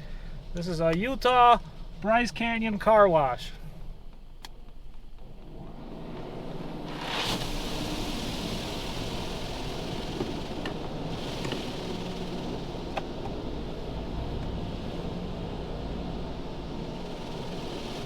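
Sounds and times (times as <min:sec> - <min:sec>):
car wash jets spraying water: 0:05.4 - 0:18.0.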